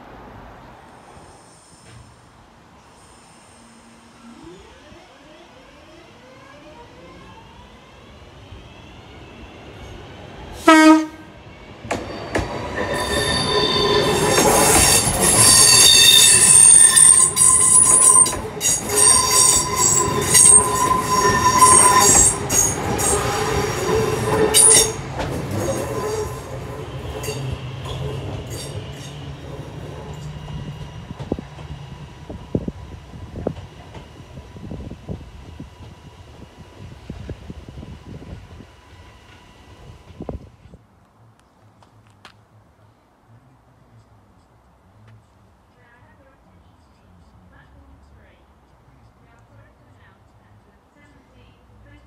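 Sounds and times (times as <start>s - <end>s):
train horn blast: 10.6s - 11.4s
wheel squeal: 12.0s - 29.2s.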